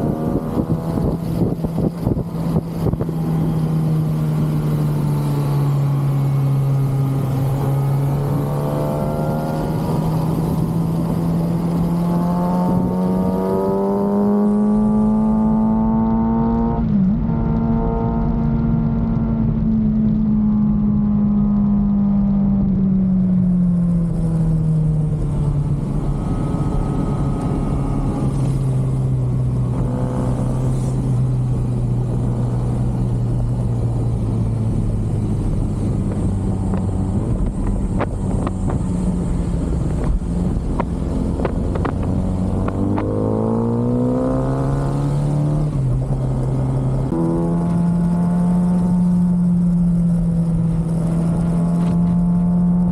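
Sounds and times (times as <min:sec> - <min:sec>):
motorcycle engine: 0:00.0 - 0:52.9
wind and road noise: 0:00.0 - 0:52.9.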